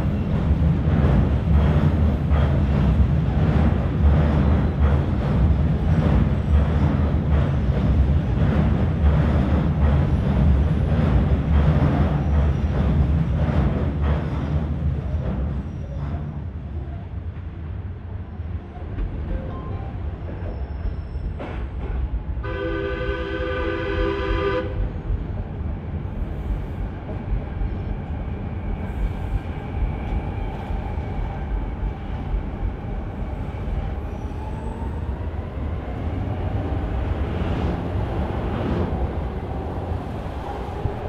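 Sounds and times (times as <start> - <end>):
train rumbling on rails: 0.0 - 41.0
multi-tone train horn: 22.4 - 24.9.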